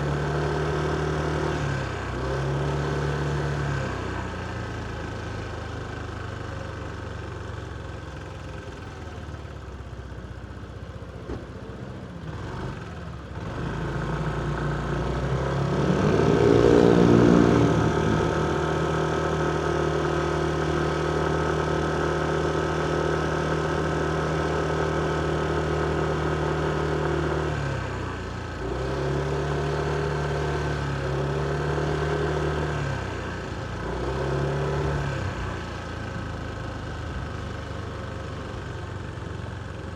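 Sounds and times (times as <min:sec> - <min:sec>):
motorcycle engine revving: 0:12.2 - 0:35.6.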